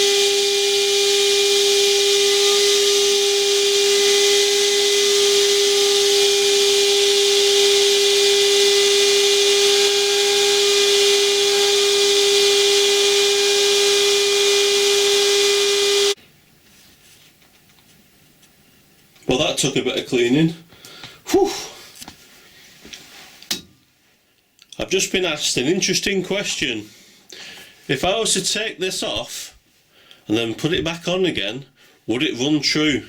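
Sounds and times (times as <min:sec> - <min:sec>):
power tool running with hiss: 0:00.0 - 0:16.2.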